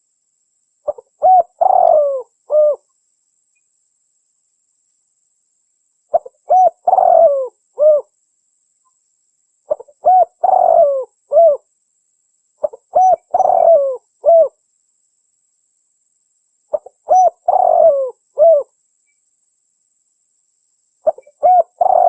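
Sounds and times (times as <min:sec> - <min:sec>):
dove cooing: 0:00.9 - 0:02.8, 0:06.1 - 0:08.1, 0:09.7 - 0:11.6, 0:12.6 - 0:14.6, 0:16.7 - 0:18.7, 0:21.0 - 0:22.0.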